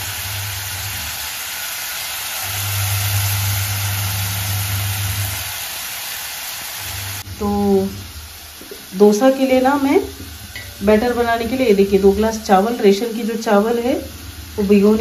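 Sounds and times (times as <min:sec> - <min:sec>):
onions sizzling in oil: 0:00.0 - 0:15.0
low hum: 0:06.8 - 0:15.0.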